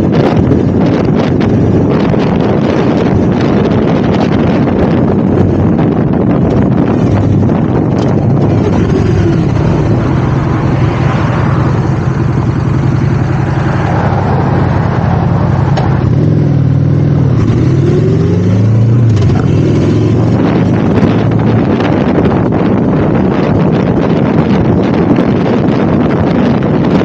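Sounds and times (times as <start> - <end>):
motorcycle engine revving: 0.0 - 27.0
wind rushing over microphone: 0.0 - 27.0.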